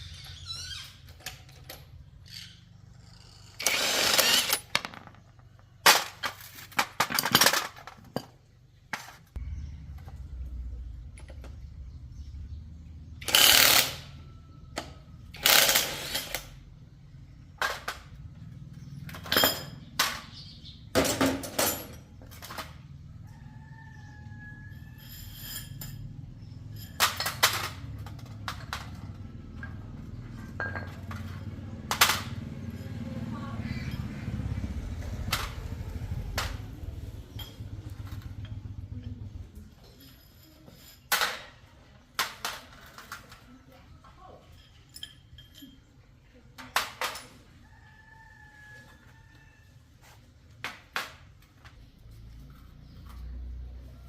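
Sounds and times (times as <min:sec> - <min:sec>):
power tool bursts: 0:03.6 - 0:04.7, 0:13.2 - 0:14.1, 0:15.4 - 0:16.5.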